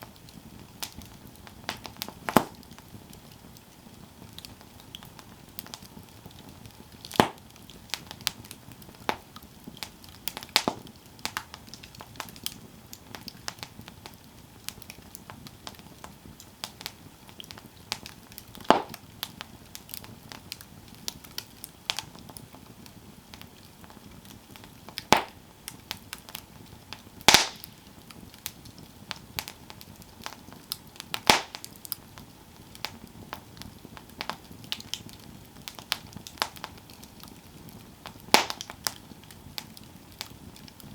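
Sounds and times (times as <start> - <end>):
campfire crackling: 0.0 - 40.9
low steady hiss: 0.0 - 40.9
sharp wood pops: 2.3 - 2.6, 7.2 - 7.4, 18.7 - 19.0, 27.3 - 27.7, 31.3 - 31.7, 38.4 - 38.7.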